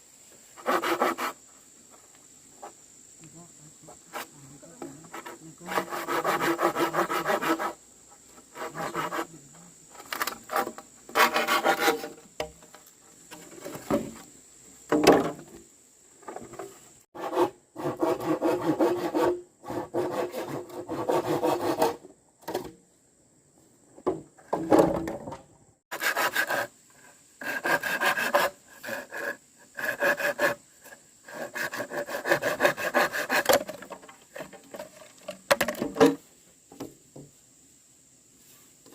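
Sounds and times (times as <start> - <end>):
hand saw cutting wood: 0.6 - 1.4, 5.1 - 7.8, 8.4 - 9.3, 10.0 - 12.2, 17.2 - 22.0, 25.9 - 26.8, 27.4 - 34.9.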